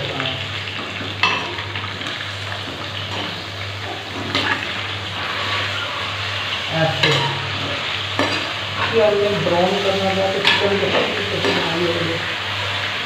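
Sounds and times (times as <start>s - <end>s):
chicken frying in hot oil: 0.0s - 13.0s.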